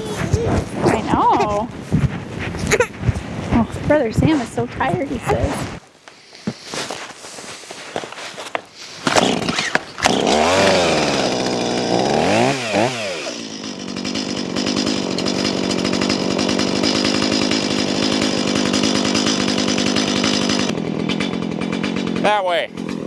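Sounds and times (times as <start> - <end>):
two-stroke chainsaw revving and idling: 8.7 - 23.0.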